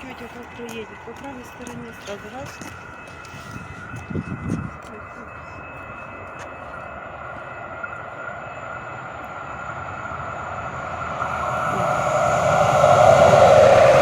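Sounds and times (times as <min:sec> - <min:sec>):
vehicle rushing noise: 0:09.6 - 0:14.0.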